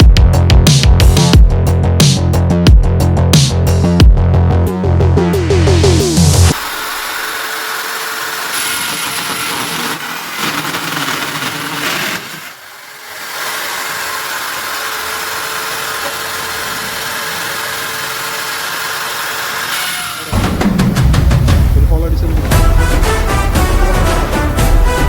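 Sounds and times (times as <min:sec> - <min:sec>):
electric drill whine: 0:06.5 - 0:20.4.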